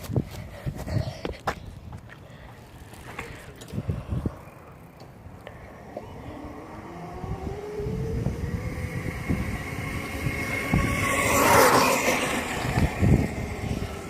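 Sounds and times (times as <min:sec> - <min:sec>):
motorcycle accelerating past: 0:05.8 - 0:14.0.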